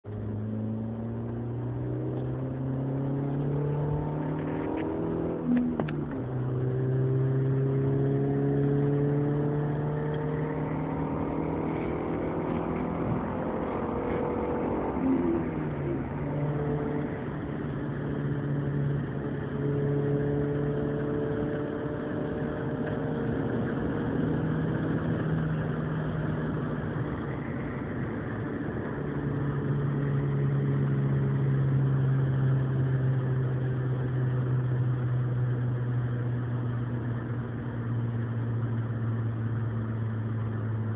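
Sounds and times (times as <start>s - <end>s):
car engine and exhaust drone: 0.0s - 40.9s.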